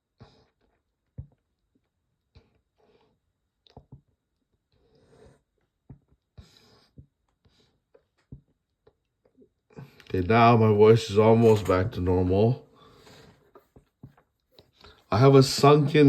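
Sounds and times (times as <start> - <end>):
person breathing and sniffing: 4.7 - 5.5, 6.4 - 8.0, 12.7 - 13.7.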